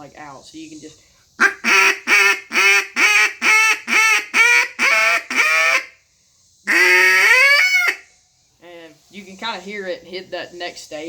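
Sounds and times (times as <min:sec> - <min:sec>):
duck call quacking notes: 0:01.4 - 0:05.9, 0:06.7 - 0:08.0.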